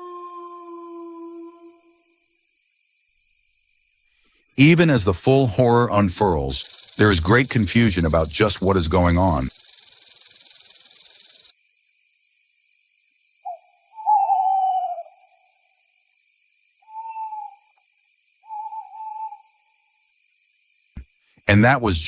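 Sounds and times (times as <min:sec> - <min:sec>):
hoot-like animal calls: 0:00.0 - 0:02.0, 0:13.5 - 0:15.5, 0:16.8 - 0:17.7, 0:18.4 - 0:19.7
insects chirring: 0:00.0 - 0:22.0.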